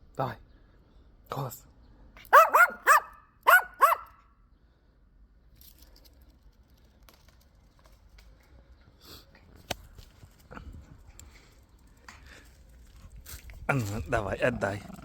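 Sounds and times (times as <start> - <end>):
small dog barking: 2.2 - 4.2.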